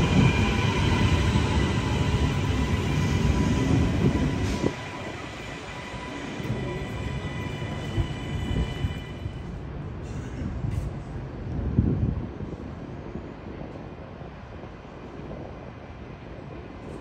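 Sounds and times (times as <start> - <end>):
train knocks: 0.0 - 9.3
train rumbling on tracks: 0.0 - 17.0.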